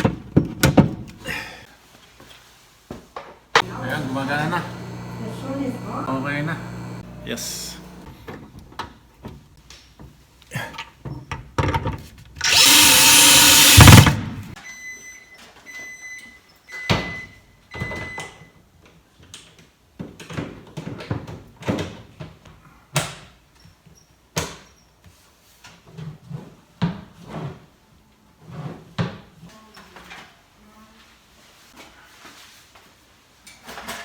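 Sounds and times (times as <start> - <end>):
loud burst of noise: 3.6 - 8.1, 12.4 - 14.5
microwave oven beeping: 3.6 - 8.1.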